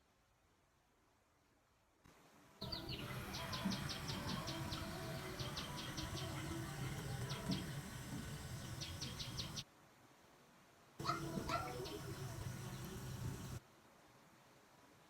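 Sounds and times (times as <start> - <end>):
steady background noise: 2.1 - 9.8, 11.0 - 14.0
small bird trilling chirps: 2.6 - 9.6, 11.0 - 13.6.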